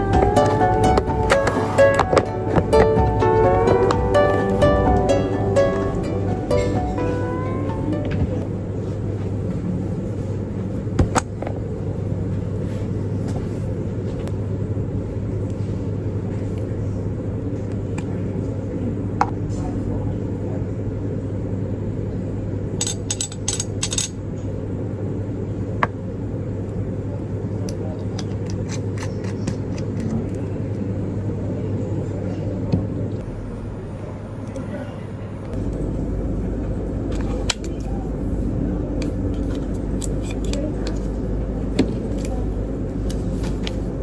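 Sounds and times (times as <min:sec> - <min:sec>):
steady low rumble: 0:00.0 - 0:19.2, 0:33.0 - 0:44.0.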